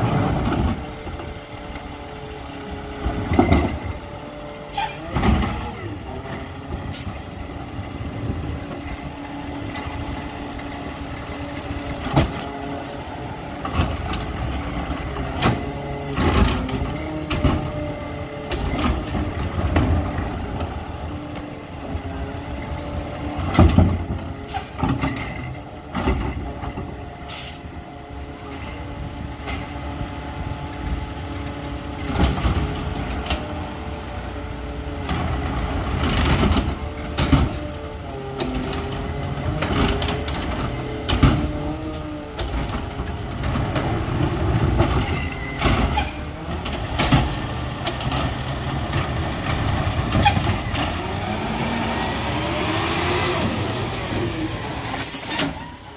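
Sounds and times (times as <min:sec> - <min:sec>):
garbage truck diesel engine: 0:00.0 - 0:55.9
air brakes hissing: 0:04.7 - 0:05.0
carts banging and knocking: 0:35.0 - 0:55.9.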